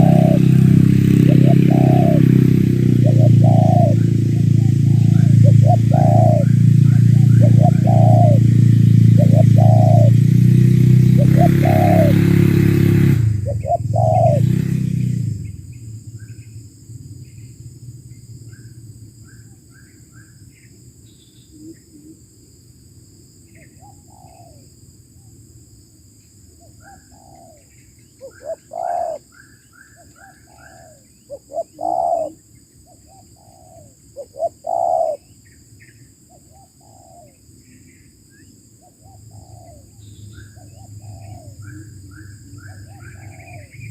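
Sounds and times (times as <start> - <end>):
doves cooing: 0.0 - 10.3, 11.1 - 14.8, 26.8 - 29.2, 30.1 - 35.3, 36.5 - 37.4, 38.9 - 43.9
small birds chirping: 0.0 - 10.3, 11.0 - 12.1, 13.4 - 22.2, 26.6 - 43.9.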